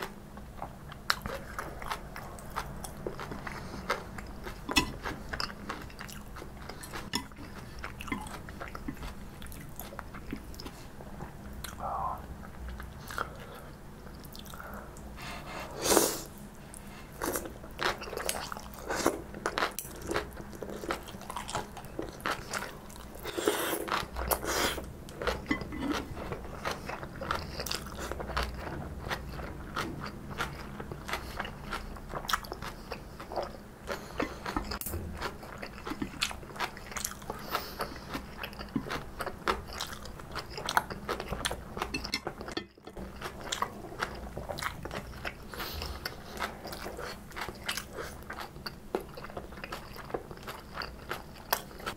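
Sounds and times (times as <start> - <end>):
crunchy chewing: 16.0 - 51.9.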